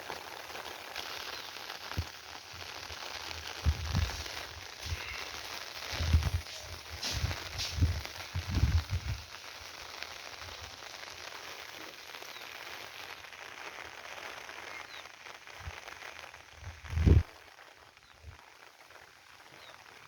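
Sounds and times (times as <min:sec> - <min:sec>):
steady rain falling: 0:00.0 - 0:20.0
low thumps on microphone: 0:03.6 - 0:04.3, 0:05.9 - 0:09.2, 0:16.8 - 0:17.2.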